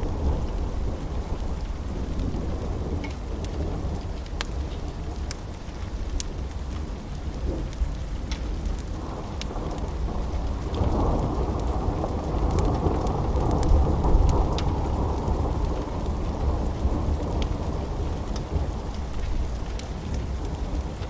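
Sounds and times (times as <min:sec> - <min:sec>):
steady rain: 0:00.0 - 0:21.0
rolling thunder: 0:09.0 - 0:20.9.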